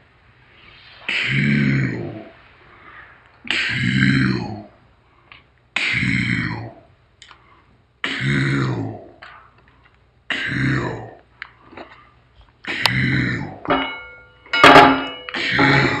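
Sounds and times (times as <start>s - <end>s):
person making guttural vocal sound: 1.1s - 2.4s, 3.4s - 4.8s, 5.8s - 6.9s, 8.0s - 9.2s, 10.3s - 11.2s, 12.6s - 13.7s, 15.4s - 16.0s.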